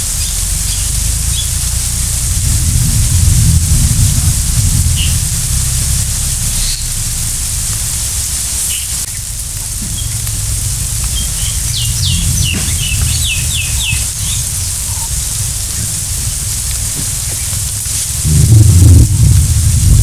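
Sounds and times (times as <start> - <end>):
high hiss: 0.0 - 20.0
low rumble: 0.0 - 20.0
bird whistling downward notes: 0.1 - 1.6, 6.5 - 7.0, 11.1 - 15.1.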